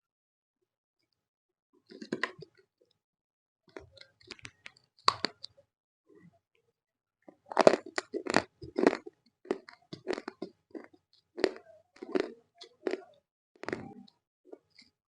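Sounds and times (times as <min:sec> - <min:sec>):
crunching and chewing clay: 0:01.8 - 0:02.6, 0:03.7 - 0:05.6, 0:07.3 - 0:15.0.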